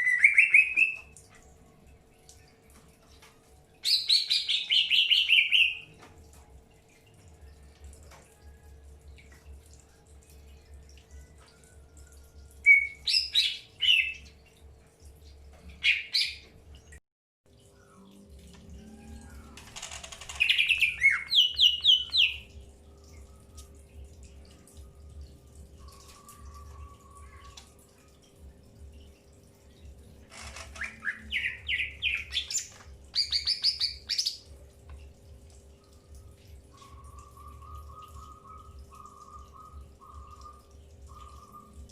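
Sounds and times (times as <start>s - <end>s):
birds chirping: 20.3s - 22.6s, 30.3s - 34.5s, 36.0s - 41.9s.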